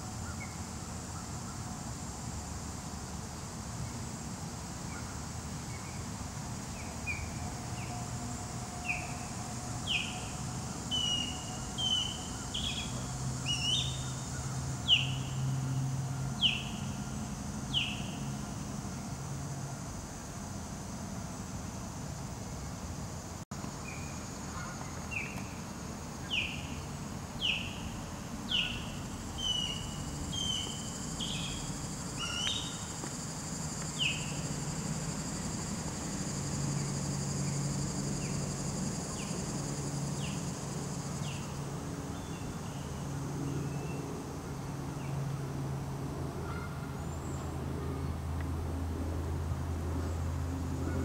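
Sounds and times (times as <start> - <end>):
high insect drone: 0.0 - 51.0
songbird chirping: 8.8 - 17.0, 17.7 - 18.3, 26.2 - 35.6.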